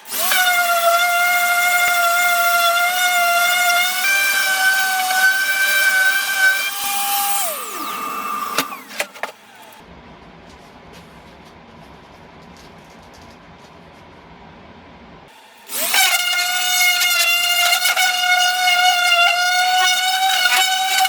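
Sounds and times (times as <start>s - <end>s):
power tool motor whine: 0.0s - 9.9s, 15.3s - 21.0s.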